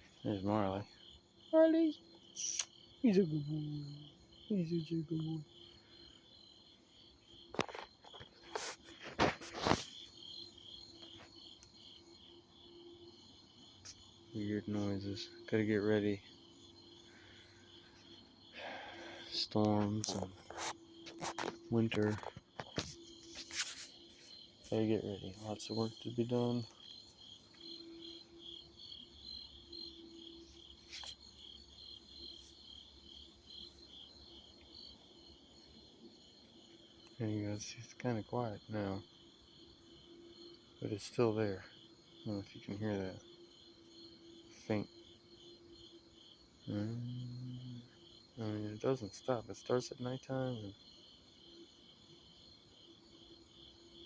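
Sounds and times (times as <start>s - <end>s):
crickets chirping: 0.0s - 54.0s
faint low hum: 21.6s - 35.8s.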